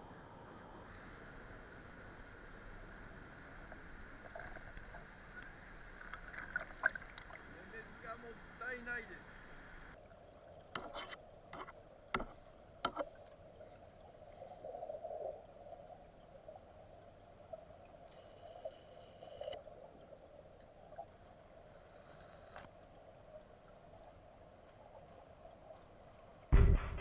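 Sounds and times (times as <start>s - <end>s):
flowing water rushing: 0.0s - 18.2s.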